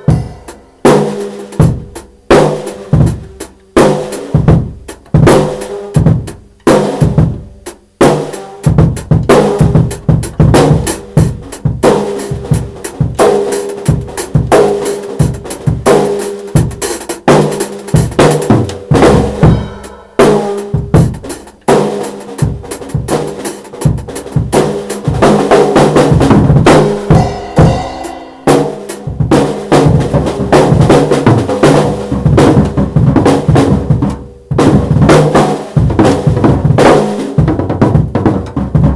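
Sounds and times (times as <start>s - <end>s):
steady pitched notes: 0.0s - 2.3s, 26.3s - 30.6s
drum kit groove: 0.0s - 38.9s.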